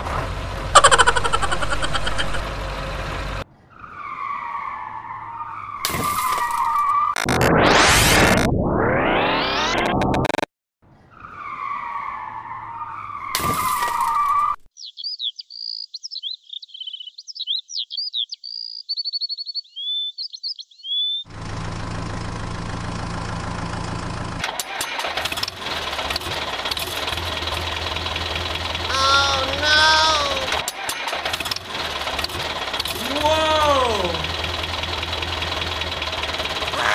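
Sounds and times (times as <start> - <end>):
heavy engine running: 0.0 - 3.4, 21.3 - 36.9
high chirping and twittering: 14.8 - 21.3.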